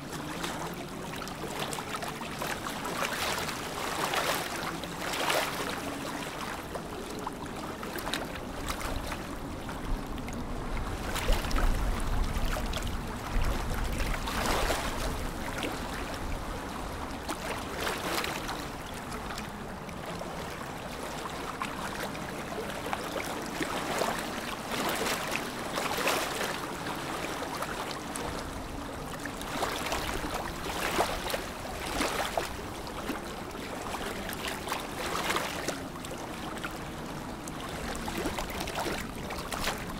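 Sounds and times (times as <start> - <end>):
water lapping: 0.0 - 39.9
small splashes: 10.9 - 39.9.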